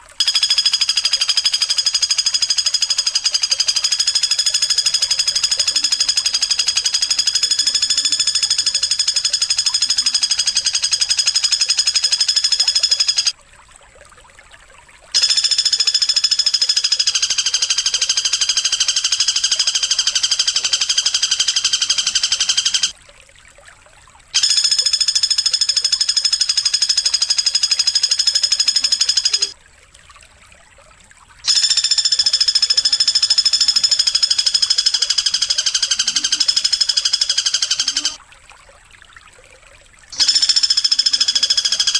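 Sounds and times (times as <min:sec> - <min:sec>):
high-pitched buzzing bird trill: 0:00.0 - 0:13.4, 0:15.2 - 0:22.9, 0:24.4 - 0:29.6, 0:31.4 - 0:38.2, 0:40.1 - 0:41.9.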